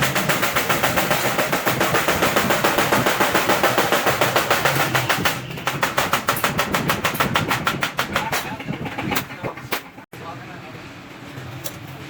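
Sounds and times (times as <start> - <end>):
hammer strikes on steel sheet: 0.0 - 8.6.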